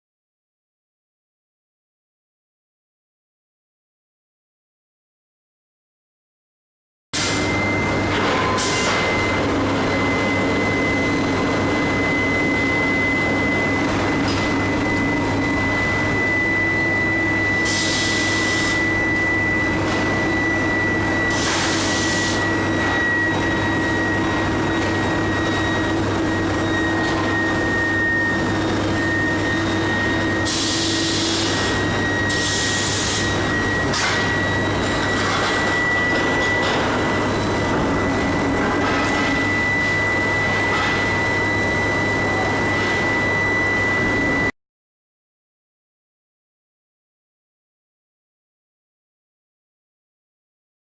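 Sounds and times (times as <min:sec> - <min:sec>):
furnace electrical hum: 0:07.2 - 0:44.5
high-pitched whine: 0:07.2 - 0:44.5.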